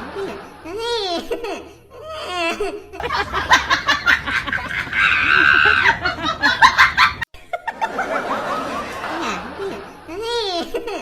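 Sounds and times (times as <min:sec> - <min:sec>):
people laughing: 0:03.0 - 0:10.1.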